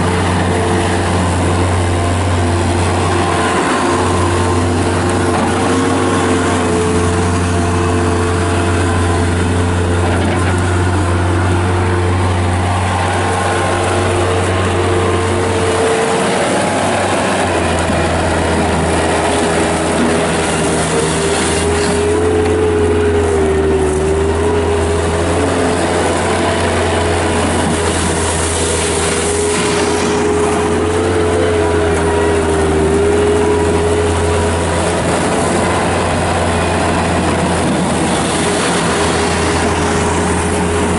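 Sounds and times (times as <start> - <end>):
diesel engine running: 0.0 - 40.9
steady whine: 0.0 - 40.9.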